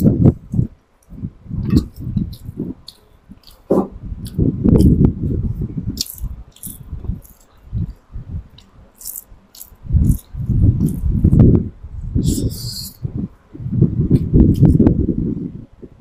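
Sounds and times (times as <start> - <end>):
chewing and wet mouth sounds: 0.5 - 11.4
crisp crunches and clicks: 6.0 - 11.1.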